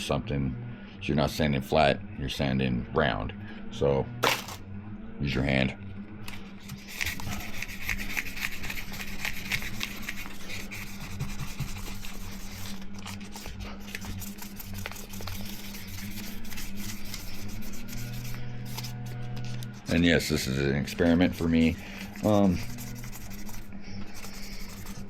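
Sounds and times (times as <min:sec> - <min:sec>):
sandpaper rasping on plastic lens: 0:06.6 - 0:20.0, 0:21.0 - 0:25.0.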